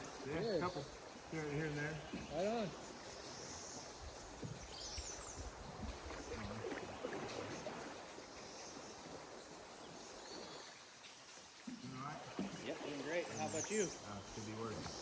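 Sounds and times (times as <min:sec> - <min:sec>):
river water rushing: 0:05.1 - 0:15.0.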